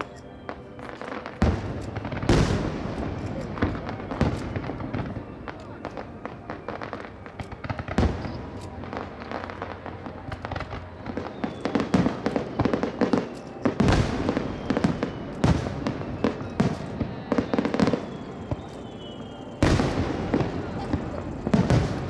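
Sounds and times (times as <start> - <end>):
fireworks crackling: 0.0 - 22.0
fireworks booming: 1.2 - 22.0.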